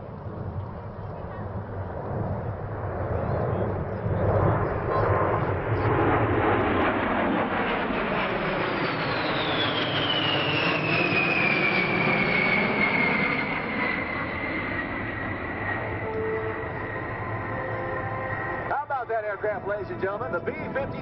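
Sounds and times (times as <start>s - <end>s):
jet engines roaring with high whine: 0.0s - 21.0s.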